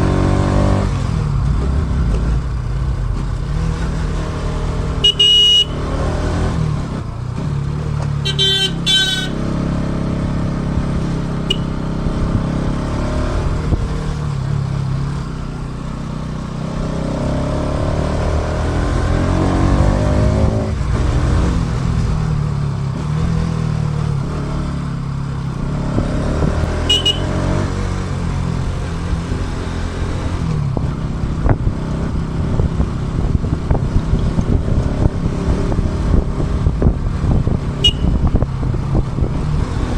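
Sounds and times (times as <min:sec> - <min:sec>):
wind and road rumble: 0:00.0 - 0:39.9
motorcycle engine running: 0:00.9 - 0:17.9, 0:20.4 - 0:39.6
vehicle horn beeping: 0:05.0 - 0:06.0, 0:08.2 - 0:09.5, 0:11.5 - 0:11.9, 0:26.7 - 0:27.6, 0:37.8 - 0:38.4.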